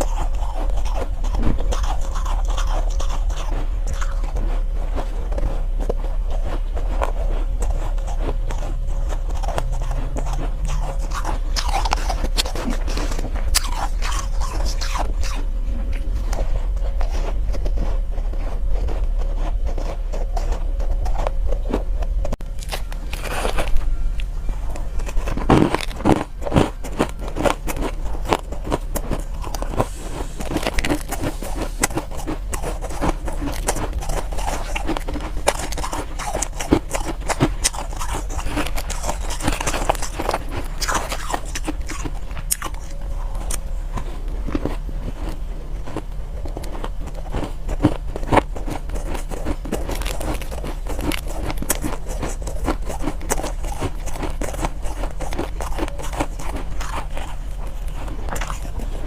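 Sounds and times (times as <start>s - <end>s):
chewing crunchy ice: 0.0s - 59.0s.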